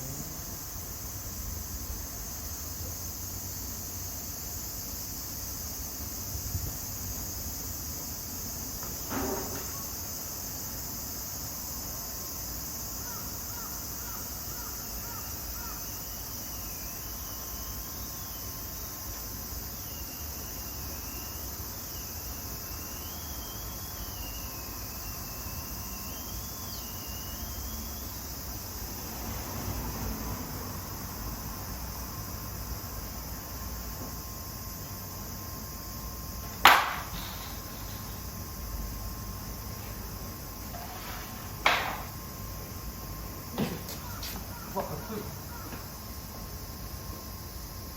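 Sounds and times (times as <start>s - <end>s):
insects chirring: 0.0s - 47.9s
faint wavering whistle tone: 22.8s - 28.2s.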